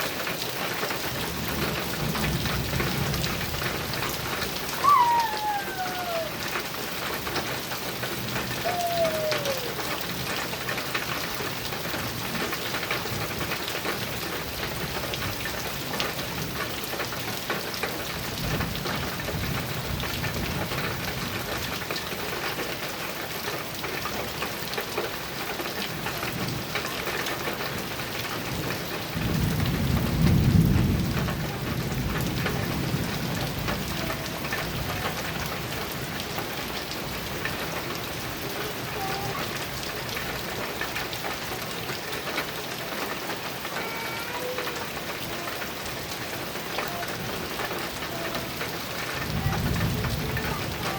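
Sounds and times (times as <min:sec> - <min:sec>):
heavy rain on a metal roof: 0:00.0 - 0:50.9
falling whistle-like calls: 0:04.7 - 0:06.6, 0:08.6 - 0:09.9
low roll of thunder: 0:29.2 - 0:36.2, 0:49.2 - 0:50.9.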